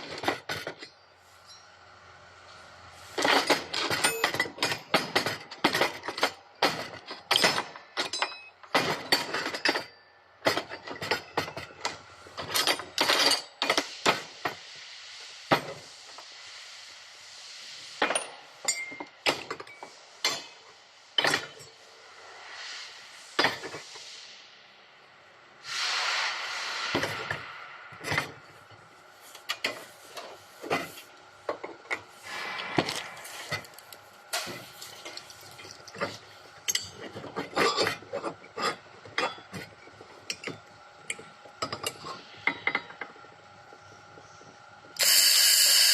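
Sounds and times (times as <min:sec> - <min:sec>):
metal parts clinking and knocking: 0:00.0 - 0:01.7, 0:03.2 - 0:14.0, 0:32.8 - 0:43.3
short steady hiss: 0:25.6 - 0:27.8.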